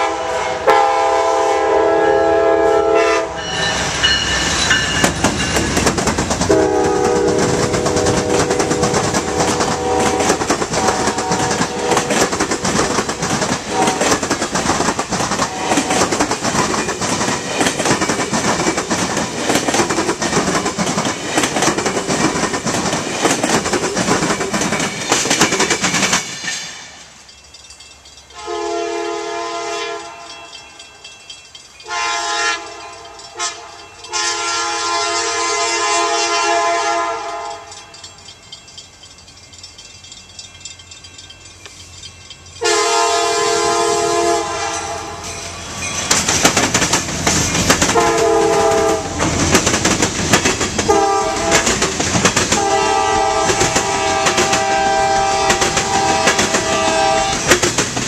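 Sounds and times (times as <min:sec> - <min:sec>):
locomotive air horn blasts: 0:00.0 - 0:03.8, 0:06.5 - 0:12.2, 0:13.7 - 0:14.2, 0:15.5 - 0:16.0, 0:28.4 - 0:30.4, 0:31.9 - 0:37.9, 0:42.6 - 0:45.3, 0:47.9 - 0:49.2, 0:50.9 - 0:51.8, 0:52.6 - 0:57.6
train wheels clattering over rail joints: 0:03.9 - 0:28.4, 0:44.2 - 0:58.0.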